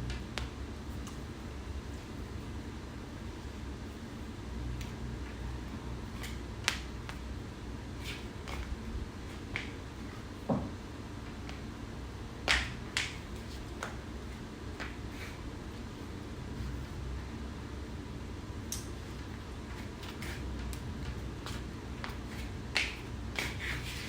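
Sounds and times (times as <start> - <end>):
flip-flop slapping against foot: 12.4 - 13.2.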